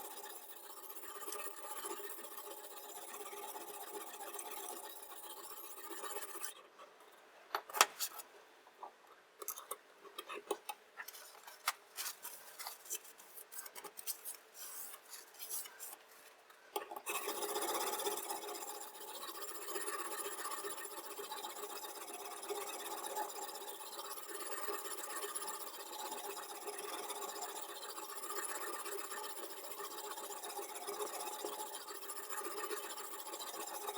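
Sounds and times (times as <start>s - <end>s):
mechanical hum: 0.0s - 21.7s.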